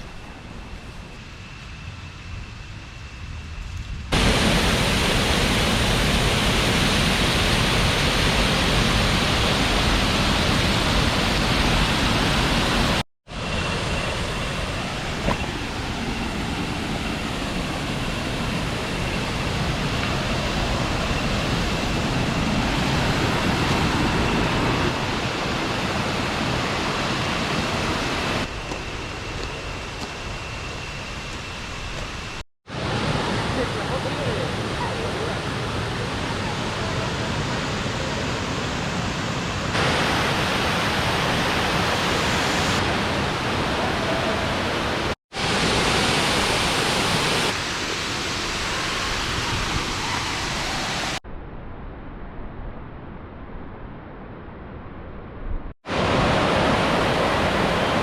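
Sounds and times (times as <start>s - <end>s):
waterfall rushing: 4.1s - 28.5s, 32.7s - 51.2s, 55.8s - 58.0s.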